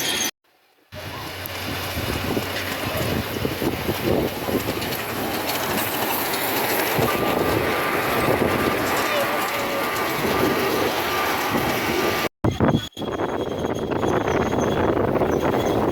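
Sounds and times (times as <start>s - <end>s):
wheels clicking over rail joints: 1.0s - 12.3s.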